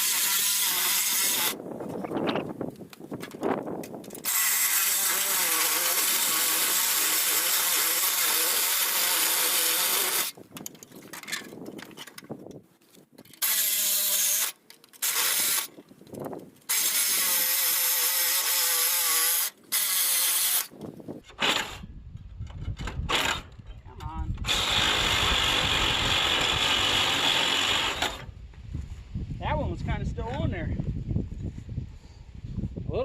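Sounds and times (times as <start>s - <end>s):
reciprocating saw cutting: 0.0s - 1.6s, 4.2s - 10.4s, 13.4s - 15.7s, 16.7s - 20.7s, 24.4s - 28.3s.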